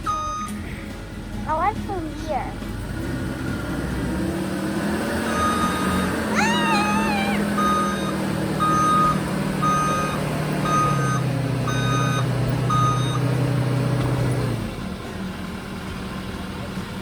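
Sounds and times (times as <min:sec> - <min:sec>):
truck backup alarm beeping: 0:00.0 - 0:00.8, 0:03.5 - 0:15.3
truck engine running: 0:00.0 - 0:17.0
short wavering squeal: 0:05.4 - 0:08.1.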